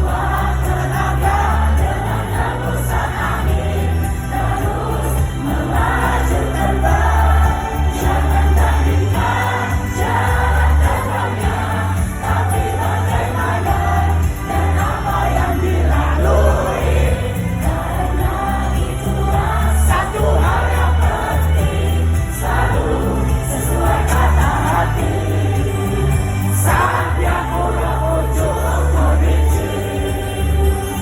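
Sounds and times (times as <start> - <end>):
female voices singing together: 0.0 - 31.0
heavy pulsing bass and band: 0.0 - 31.0.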